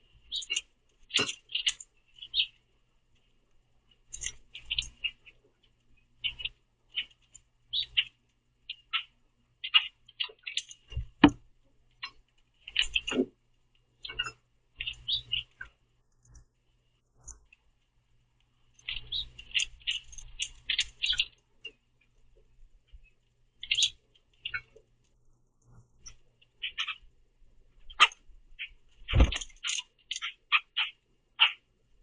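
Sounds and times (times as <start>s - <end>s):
grackles chirping: 0.0s - 2.7s, 4.0s - 5.4s, 6.0s - 13.3s, 14.0s - 16.4s, 18.7s - 21.9s, 22.8s - 24.9s, 26.0s - 31.7s.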